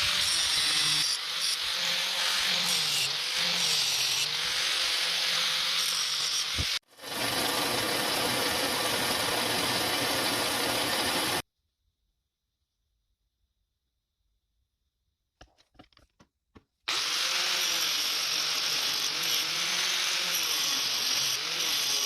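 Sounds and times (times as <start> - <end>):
power tool cutting steel: 0.0 - 11.4, 16.9 - 22.0.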